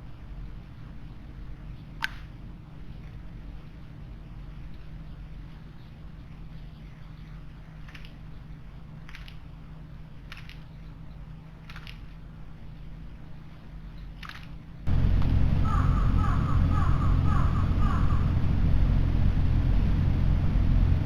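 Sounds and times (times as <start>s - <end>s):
steady low hum: 0.0s - 21.0s
loud low rumble: 14.9s - 21.0s.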